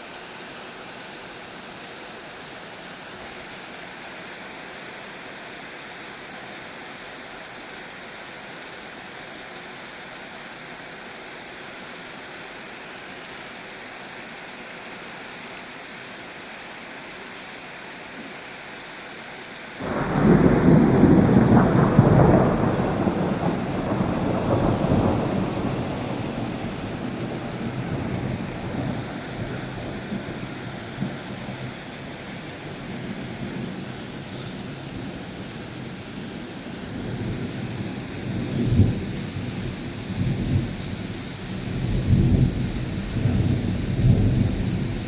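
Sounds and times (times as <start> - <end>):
rain hissing: 19.2 - 45.0
thunderclap rumbling: 19.8 - 36.0, 36.9 - 45.0.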